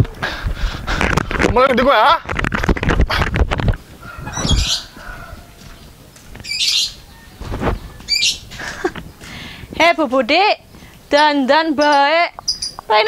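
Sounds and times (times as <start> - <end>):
bird calling high chirps: 4.3 - 5.1, 6.4 - 8.6, 11.1 - 13.0.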